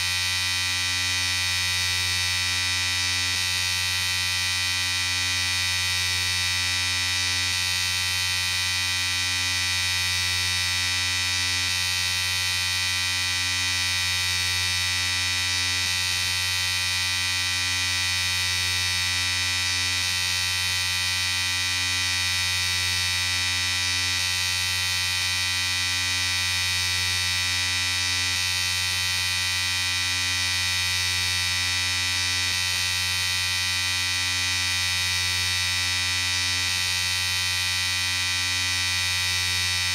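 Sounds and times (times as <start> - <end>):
electric shaver buzzing: 0.0 - 39.9.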